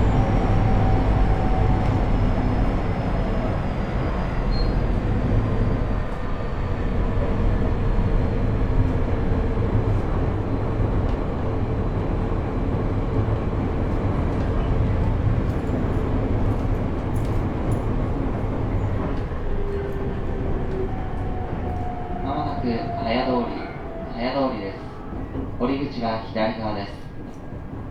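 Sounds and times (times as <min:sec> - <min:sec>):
train wheels rumbling on rails: 0:00.0 - 0:27.9
inverter and gear whine: 0:18.4 - 0:26.4.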